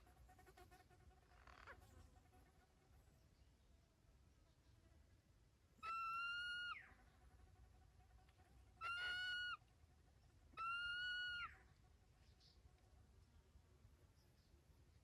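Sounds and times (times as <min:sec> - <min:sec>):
bird calling: 0:08.8 - 0:09.6.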